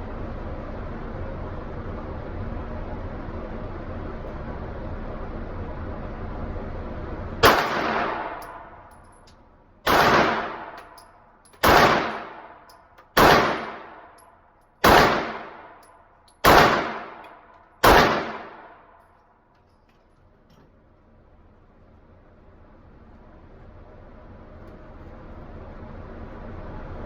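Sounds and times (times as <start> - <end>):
gunshots ringing out: 7.4 - 8.6, 9.9 - 10.9, 11.6 - 14.1, 14.8 - 15.8, 16.4 - 18.8.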